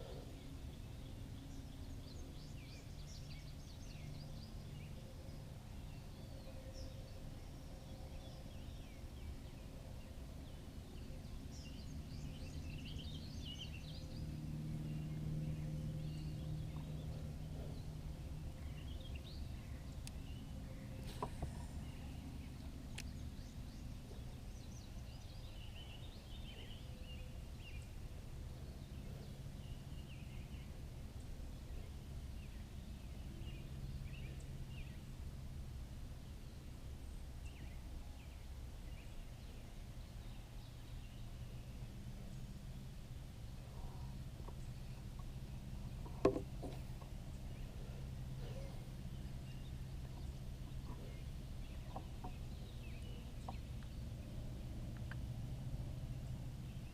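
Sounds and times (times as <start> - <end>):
low outdoor rumble: 0.0 - 56.9
birds chirping and calling: 43.7 - 54.0.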